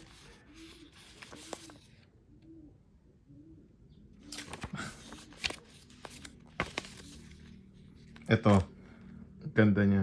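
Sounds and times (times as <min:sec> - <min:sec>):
faint bird cooing: 0:00.0 - 0:05.8
paper cards clicking: 0:04.3 - 0:07.3.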